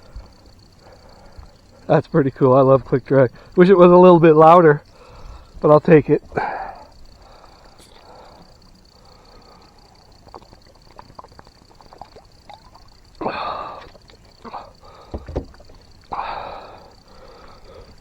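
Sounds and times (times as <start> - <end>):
light clicks and knocks: 15.1 - 15.8
low thumps: 15.1 - 15.8.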